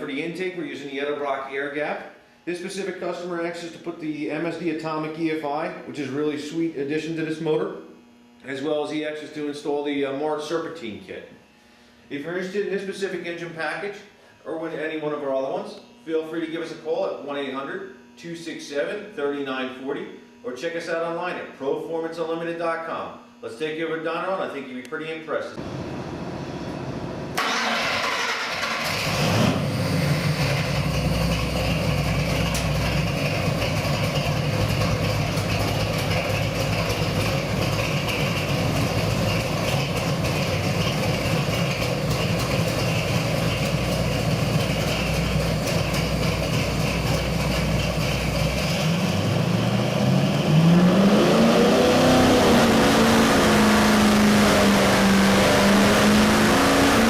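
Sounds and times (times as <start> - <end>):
engine idling: 25.6 - 50.9, 52.0 - 57.0
engine revving: 25.6 - 57.0
engine starting: 27.3 - 30.8.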